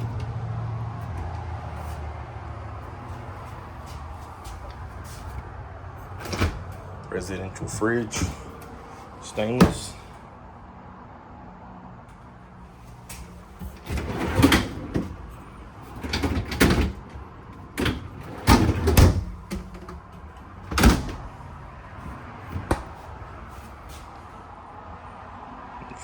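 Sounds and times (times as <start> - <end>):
drawers sliding: 6.1 - 6.8, 13.1 - 15.3, 15.9 - 17.0, 17.7 - 19.8, 20.7 - 21.4
refrigerator doors thumping: 6.1 - 6.8, 8.0 - 8.8, 9.4 - 10.1, 15.9 - 17.1, 17.7 - 23.3.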